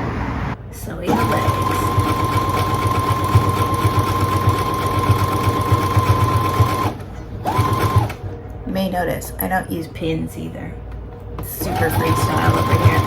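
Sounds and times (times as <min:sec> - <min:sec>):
sewing machine stitching: 0:01.0 - 0:08.3, 0:11.6 - 0:13.0.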